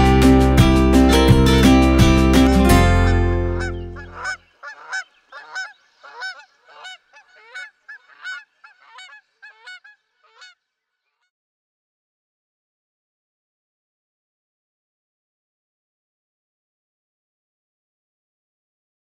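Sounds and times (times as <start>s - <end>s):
guitar music: 0.0s - 4.3s
honking bird calls: 2.4s - 10.6s.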